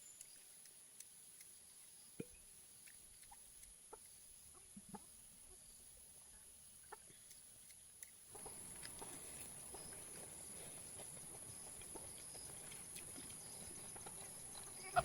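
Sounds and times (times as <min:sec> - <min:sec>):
insect hum: 0:00.0 - 0:15.0
chicken clucks: 0:08.3 - 0:09.9, 0:13.8 - 0:15.0.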